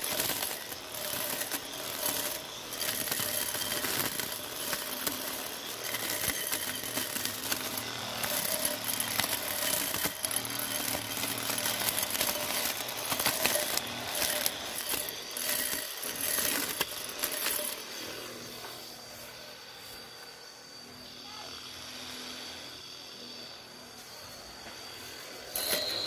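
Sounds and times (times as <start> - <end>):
cutter clicking against grass: 0.0 - 17.8
grass trimmer motor whine: 0.0 - 26.0.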